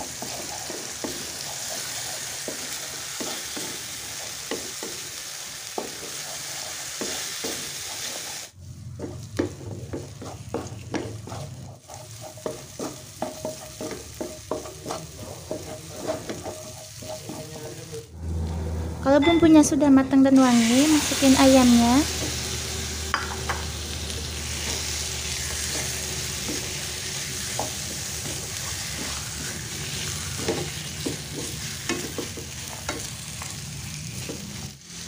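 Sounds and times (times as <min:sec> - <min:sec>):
wooden spatula scraping pan: 0:00.0 - 0:05.0, 0:05.8 - 0:18.1, 0:24.3 - 0:34.7
paste sizzling in oil: 0:00.0 - 0:18.1, 0:20.3 - 0:35.0.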